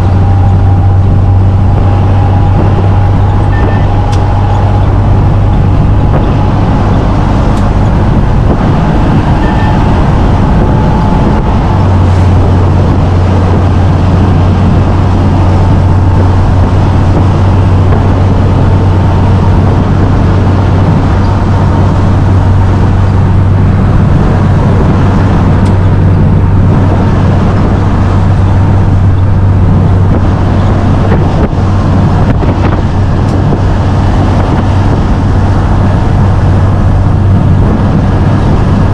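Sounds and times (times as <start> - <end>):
road noise: 0.0 - 38.9
truck engine drone: 0.0 - 38.9.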